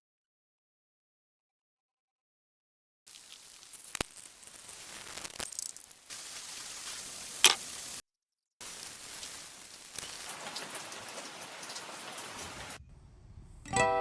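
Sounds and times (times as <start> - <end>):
steady rain falling: 3.1 - 8.0, 8.6 - 13.6.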